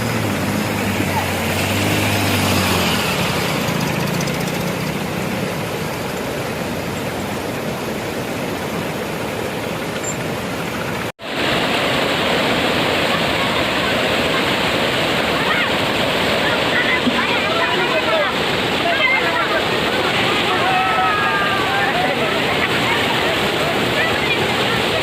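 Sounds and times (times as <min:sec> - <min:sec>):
tractor engine hum: 0:00.0 - 0:11.1
waterfall rushing: 0:00.0 - 0:25.0.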